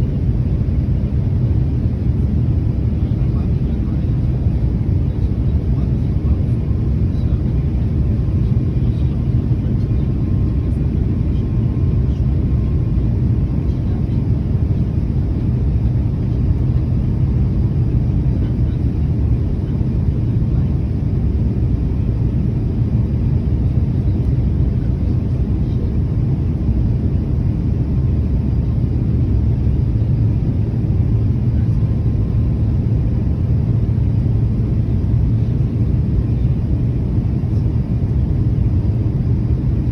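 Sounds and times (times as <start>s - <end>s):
jet engine rumble in cabin: 0.0s - 39.9s.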